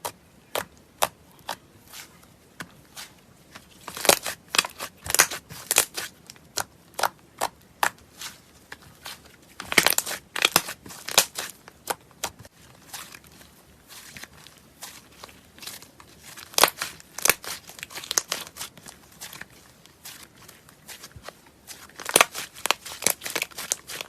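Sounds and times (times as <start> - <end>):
slime crackling and popping: 3.8 - 8.0, 9.6 - 13.2, 14.8 - 24.0.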